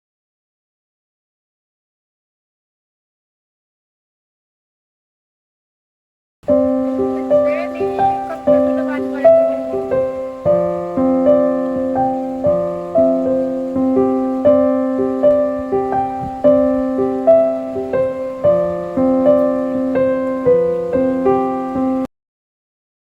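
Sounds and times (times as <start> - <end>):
piano melody: 6.4 - 22.1.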